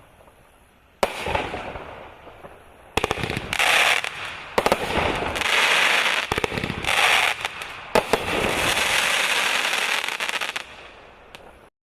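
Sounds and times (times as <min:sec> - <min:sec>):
dense firework crackling: 0:00.0 - 0:11.7
firework bangs: 0:01.0 - 0:11.7.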